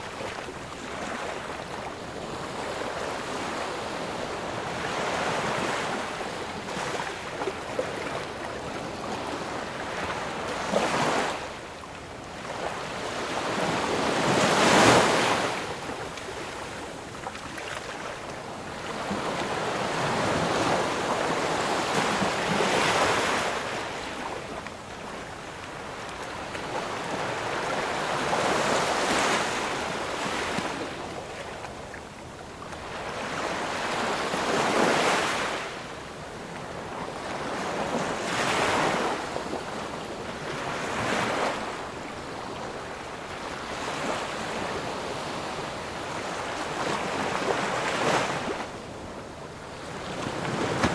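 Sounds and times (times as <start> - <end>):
ocean waves breaking: 46.4 - 50.9.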